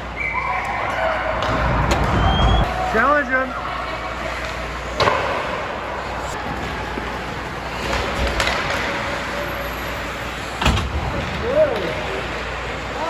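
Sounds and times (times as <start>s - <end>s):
team game noise: 0.0s - 7.6s.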